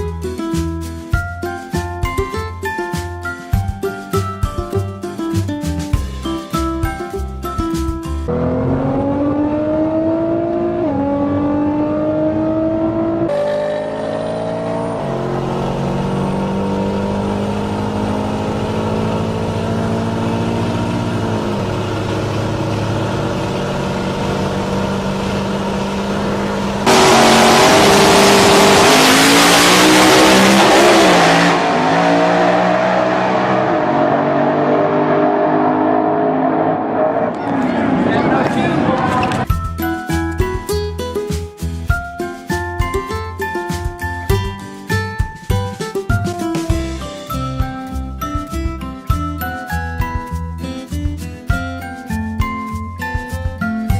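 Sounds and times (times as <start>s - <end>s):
car engine accelerating: 8.3s - 39.5s.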